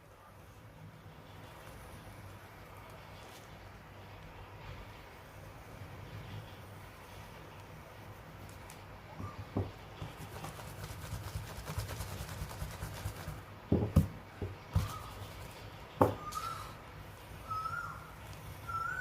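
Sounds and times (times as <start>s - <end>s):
pencil scratching on paper: 10.0s - 13.4s
short high whistle-like calls: 16.2s - 16.8s, 17.4s - 19.0s.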